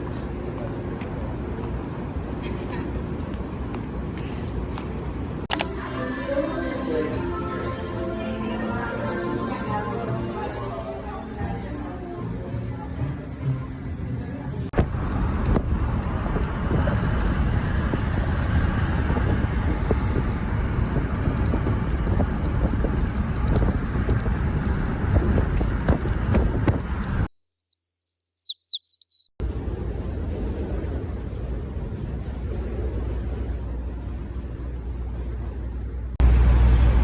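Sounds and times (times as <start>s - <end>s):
engine rumble: 0.0s - 27.3s, 29.4s - 37.0s
wind rumble: 12.4s - 27.3s
bird chirping: 27.3s - 29.3s.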